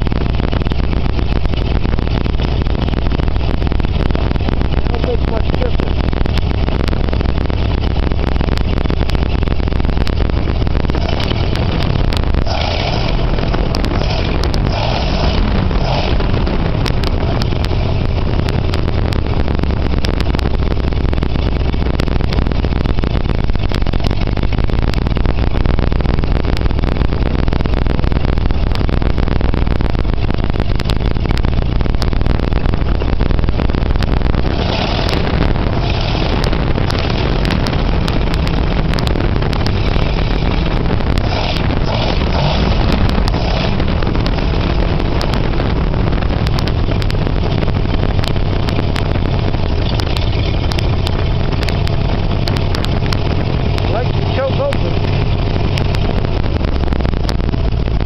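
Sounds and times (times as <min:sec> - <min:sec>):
engine deep even hum: 0:00.0 - 0:58.0
bright engine clatter: 0:30.2 - 0:58.0.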